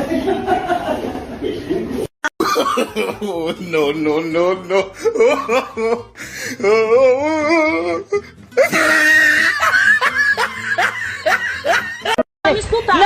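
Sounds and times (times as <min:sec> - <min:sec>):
person laughing hard: 0:02.4 - 0:04.0, 0:04.7 - 0:12.2.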